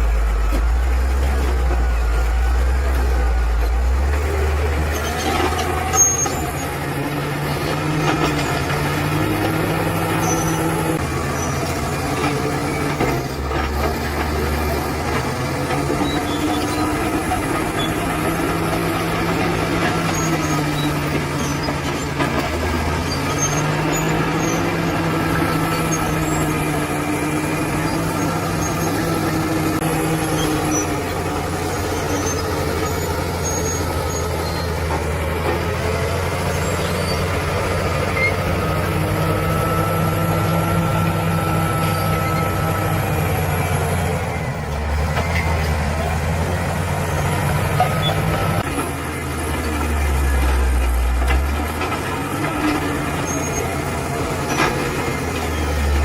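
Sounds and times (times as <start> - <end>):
bulldozer diesel engine running: 0.0 - 56.0
faint high squeaks: 4.8 - 6.8, 23.0 - 35.0.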